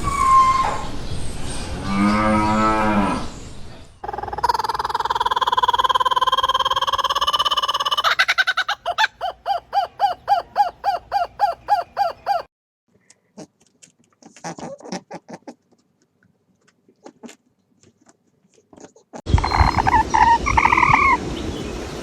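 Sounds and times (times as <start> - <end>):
loud animal sound: 4.0 - 9.0, 19.4 - 21.2.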